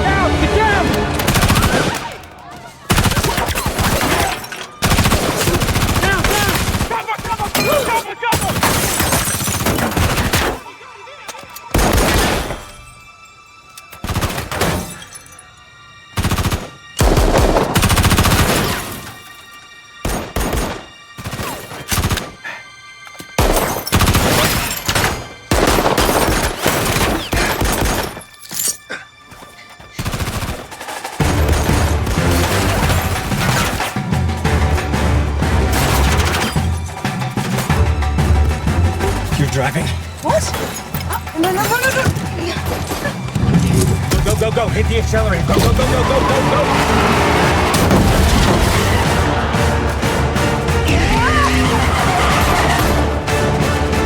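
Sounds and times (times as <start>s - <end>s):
action film score: 0.0s - 54.0s
loud gunfire bursts: 4.8s - 7.5s, 25.5s - 28.0s.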